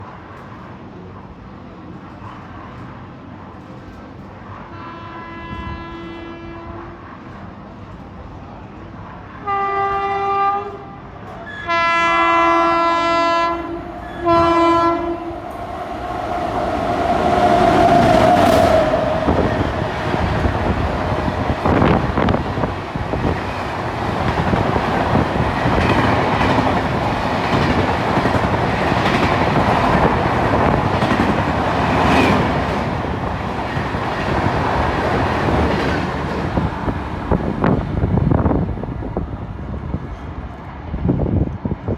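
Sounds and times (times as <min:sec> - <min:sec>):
train horn blasts: 0:04.7 - 0:07.0, 0:09.4 - 0:15.4
train wheels clattering on track: 0:15.5 - 0:37.8.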